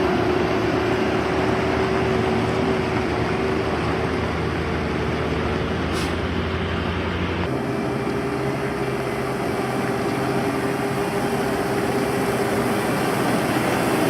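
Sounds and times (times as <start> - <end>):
road-paving machinery engine: 0.0 - 14.0
brief hiss: 5.9 - 6.3.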